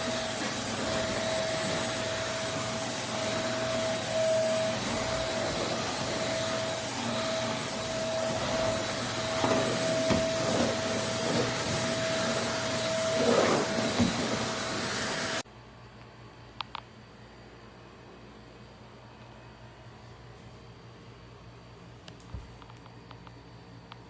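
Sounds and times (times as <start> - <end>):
stick vacuum running: 0.0 - 15.4.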